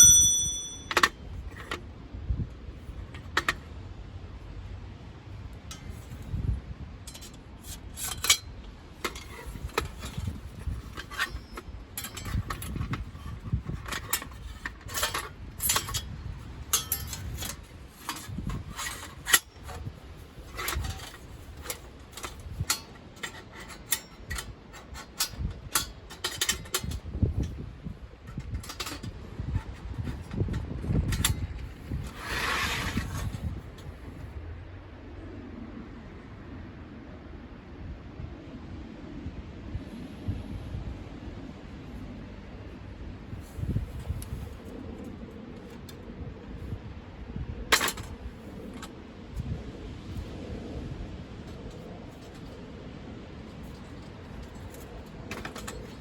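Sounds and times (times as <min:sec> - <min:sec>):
metal items clinking and rattling: 0:00.0 - 0:01.8, 0:09.0 - 0:27.5.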